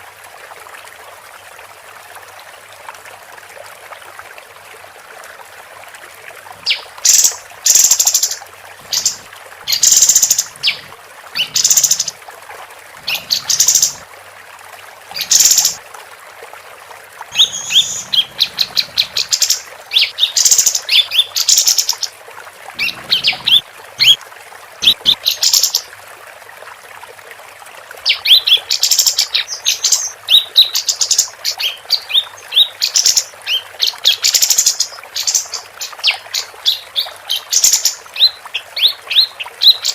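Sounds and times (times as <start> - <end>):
bird chirping and trilling: 6.6 - 12.2, 13.0 - 14.0, 15.2 - 15.8, 17.3 - 22.1, 22.8 - 24.2, 24.8 - 25.8.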